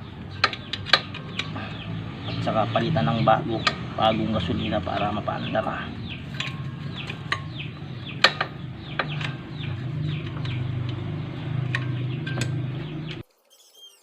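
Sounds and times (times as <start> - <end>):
low hum: 0.0 - 13.2
birds chirping: 0.0 - 14.0
sharp clicks: 0.4 - 1.6.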